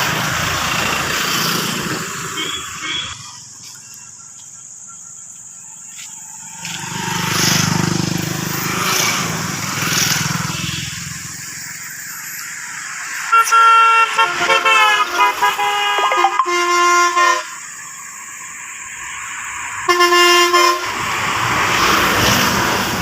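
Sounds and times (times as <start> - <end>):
vehicle rumbling by: 0.0 - 3.9, 5.8 - 13.3, 20.8 - 23.0
vehicle horn stepping tones: 2.2 - 3.9, 13.4 - 17.6, 19.9 - 21.0.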